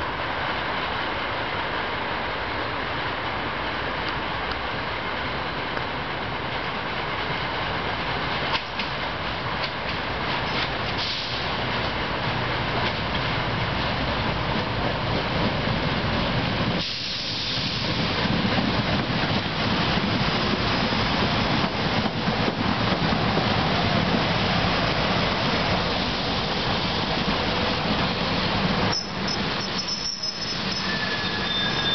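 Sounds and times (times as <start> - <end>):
train rolling past: 0.0 - 31.9
hiss: 10.5 - 11.7, 16.7 - 18.8.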